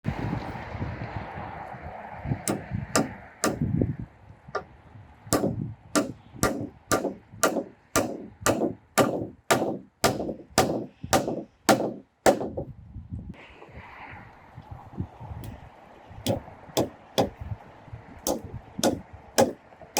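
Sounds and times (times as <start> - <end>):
hammer blows: 2.5 - 3.7, 5.4 - 12.7, 16.3 - 17.4, 18.3 - 19.6.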